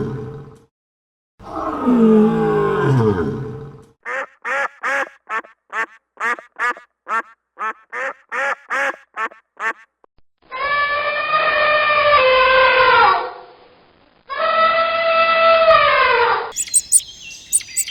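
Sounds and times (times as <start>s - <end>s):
deep animal roar: 1.4s - 3.9s
duck quacking: 4.1s - 9.9s, 16.6s - 17.9s.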